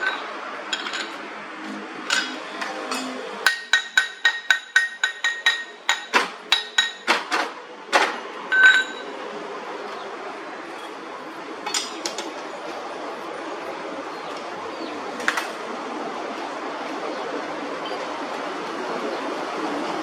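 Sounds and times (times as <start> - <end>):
hammer striking steel: 2.1 - 9.1
ringing metal clank: 8.1 - 9.2.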